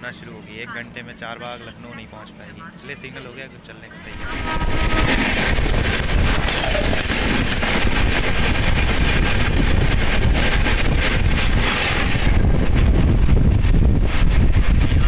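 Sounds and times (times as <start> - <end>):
train coach rumbling on track: 0.0 - 15.0
wind buffeting microphone: 4.0 - 15.0.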